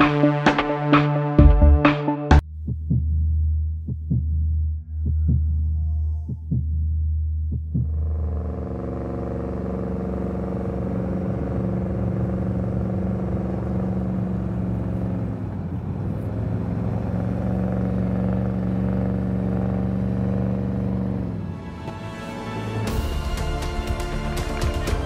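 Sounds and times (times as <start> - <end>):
car engine under heavy load: 8.0 - 25.0.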